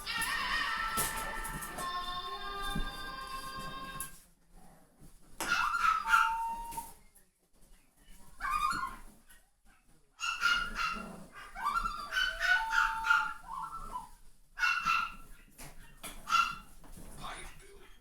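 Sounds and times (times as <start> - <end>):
puppies yipping and whining: 5.4 - 7.0, 8.4 - 9.1, 10.2 - 15.3.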